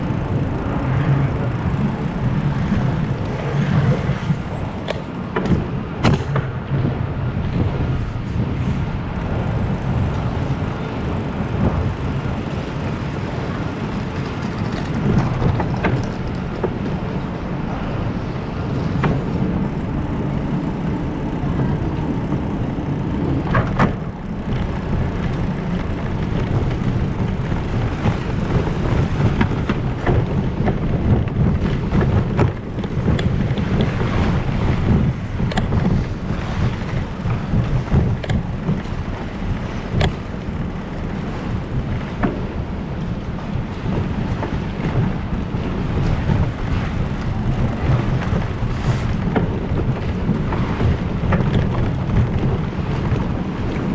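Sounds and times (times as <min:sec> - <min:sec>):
bicycle road noise: 0:00.0 - 0:53.9
wind rumble on microphone: 0:00.0 - 0:53.9
short clicks and rattles: 0:19.0 - 0:45.1.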